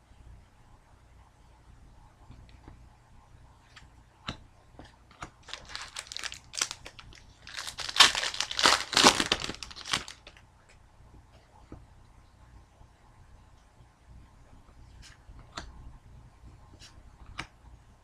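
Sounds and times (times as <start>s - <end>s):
foil wrapper crinkling and tearing: 5.4s - 10.4s.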